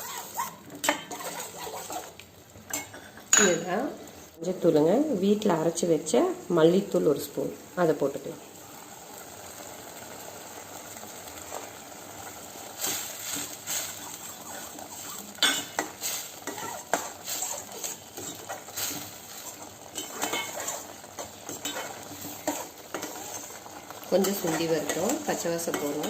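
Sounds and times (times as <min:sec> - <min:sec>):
spoon scraping in cooking pan: 0:00.0 - 0:04.2, 0:12.6 - 0:26.0.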